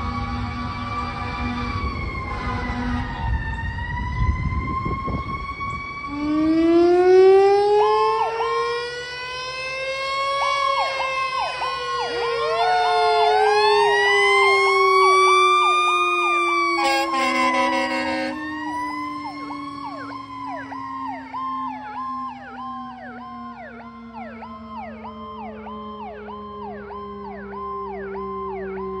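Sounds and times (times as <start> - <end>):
electronic sirens wailing and yelping: 0.1 - 29.0
air horn blast: 16.7 - 18.5.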